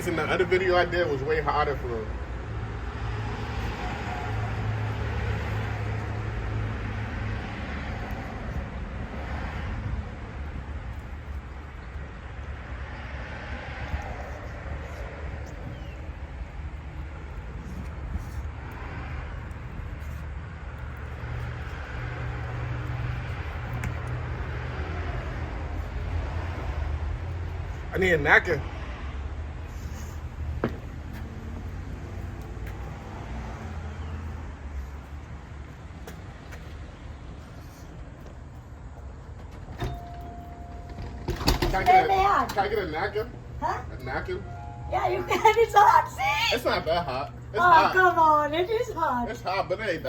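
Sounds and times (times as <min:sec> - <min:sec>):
vehicle rumble: 0:00.0 - 0:50.0
vehicle engine hum from inside: 0:28.6 - 0:41.6.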